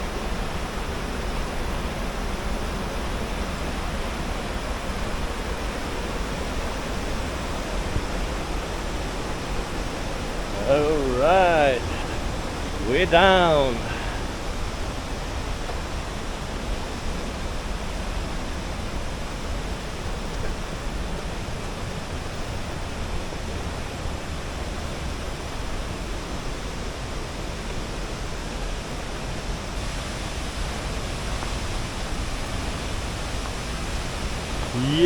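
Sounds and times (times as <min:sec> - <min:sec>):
waterfall rushing: 0:10.2 - 0:15.0, 0:29.8 - 0:35.0.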